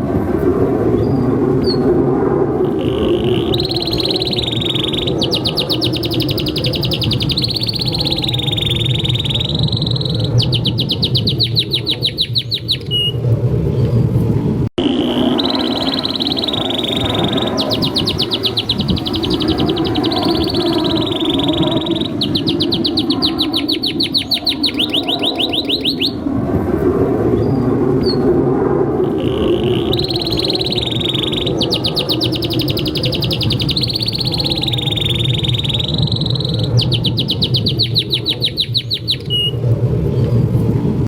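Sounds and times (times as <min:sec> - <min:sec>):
low background rumble: 0:00.0 - 0:41.0
canary singing trills: 0:02.6 - 0:13.2, 0:14.8 - 0:26.2, 0:29.0 - 0:39.6.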